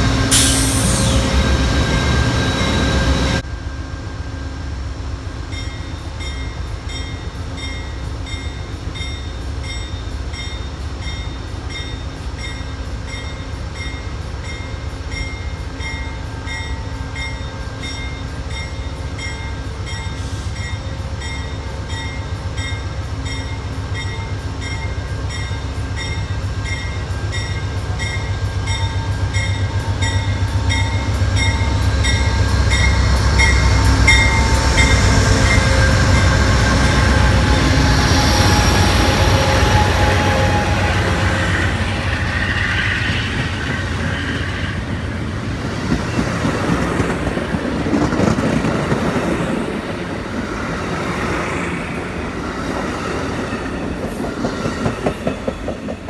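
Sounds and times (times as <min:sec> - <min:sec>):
locomotive engine and wheels rumbling: 0:00.0 - 0:56.0
locomotive bell ringing: 0:05.5 - 0:40.6.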